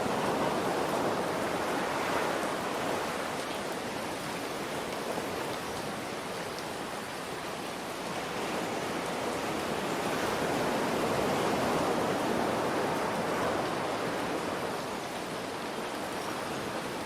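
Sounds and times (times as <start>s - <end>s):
ocean surf: 0.0s - 17.0s
rain falling: 0.0s - 17.0s.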